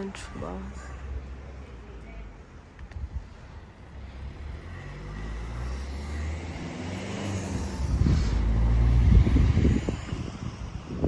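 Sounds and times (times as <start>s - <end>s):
wind buffeting microphone: 2.8s - 3.9s, 7.2s - 11.0s.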